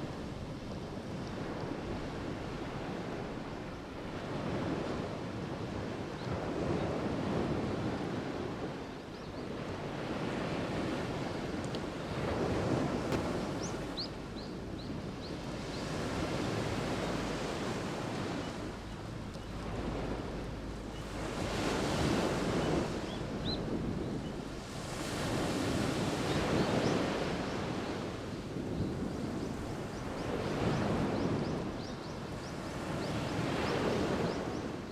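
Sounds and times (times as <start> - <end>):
waves breaking on shore: 0.0 - 34.9.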